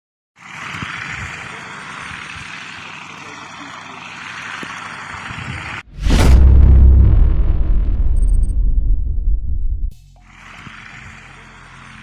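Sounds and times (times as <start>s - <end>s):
steady rushing noise: 5.8s - 10.0s
deep booming hit: 5.9s - 10.0s
whoosh: 5.9s - 10.0s.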